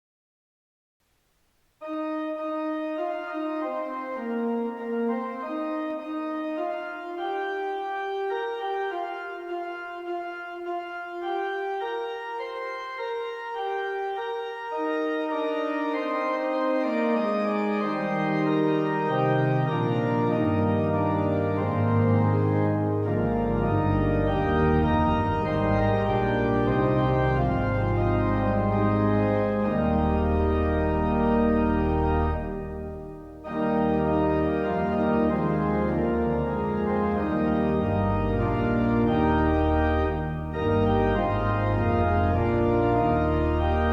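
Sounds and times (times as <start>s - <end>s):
organ chords: 1.8s - 43.9s
deep organ pedal bass: 2.2s - 43.9s.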